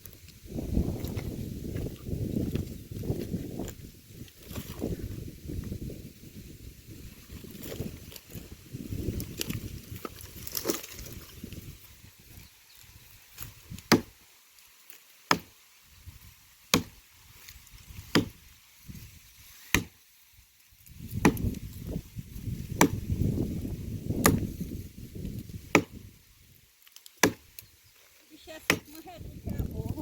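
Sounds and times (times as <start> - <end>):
firewood being chopped: 9.2 - 11.2, 13.4 - 14.2, 14.8 - 15.6, 16.6 - 18.5, 19.6 - 20.0, 20.8 - 26.2, 26.8 - 27.7, 28.6 - 29.0.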